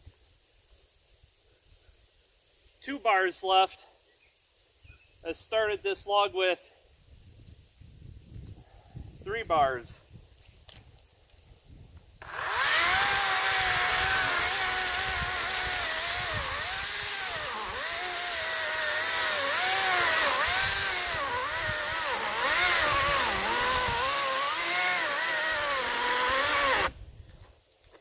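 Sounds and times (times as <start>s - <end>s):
electric chainsaw cutting log: 12.2s - 27.0s.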